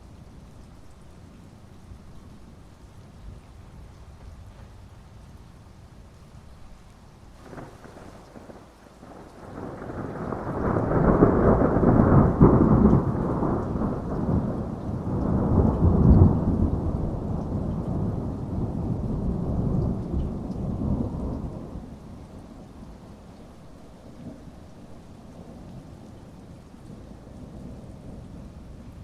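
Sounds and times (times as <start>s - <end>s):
rain hissing: 0.0s - 29.0s
thunder rolling: 7.4s - 21.9s.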